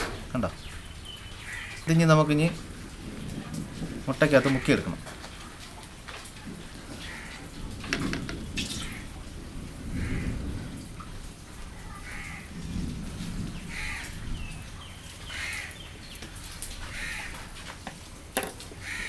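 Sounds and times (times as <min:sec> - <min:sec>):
bird calling: 0:07.0 - 0:09.2.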